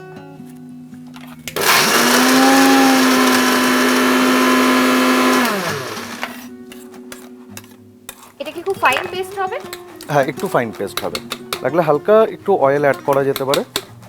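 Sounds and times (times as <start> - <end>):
electric blender grinding: 1.5 - 6.5.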